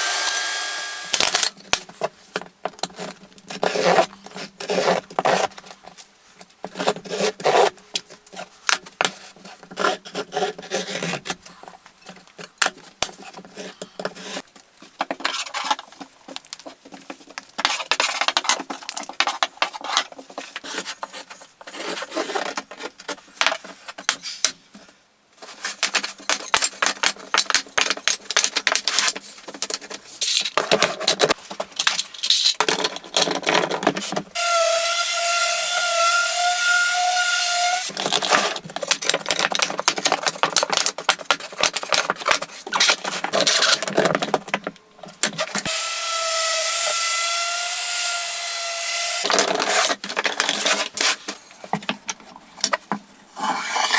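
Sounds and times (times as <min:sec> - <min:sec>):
hand tools scraping wood: 0:33.5 - 0:38.6.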